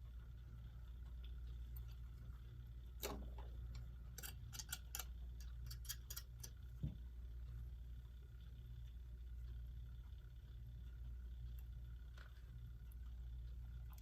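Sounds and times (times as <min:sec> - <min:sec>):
steady low hum: 0:00.0 - 0:14.0
clock parts clicking: 0:03.0 - 0:06.7.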